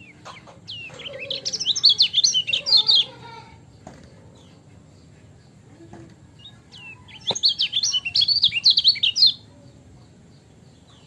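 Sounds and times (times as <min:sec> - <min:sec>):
bird singing whistles and chirps: 0:00.0 - 0:03.1, 0:06.4 - 0:09.4.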